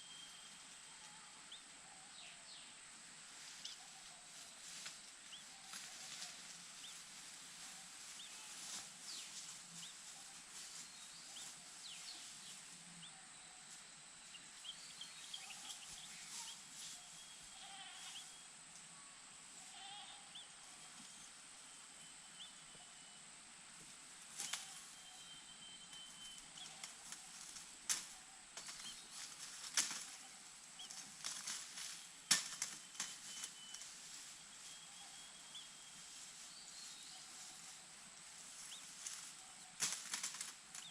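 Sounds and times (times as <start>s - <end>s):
steady high hiss: 0.0s - 40.9s
soft high chick chirps: 3.4s - 13.1s, 13.7s - 18.4s, 24.3s - 40.9s
chicks rustling in nest: 35.3s - 40.9s.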